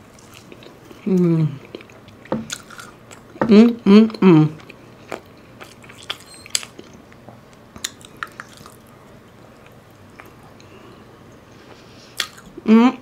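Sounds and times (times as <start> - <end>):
close-up chewing and biting food: 4.6 - 9.0.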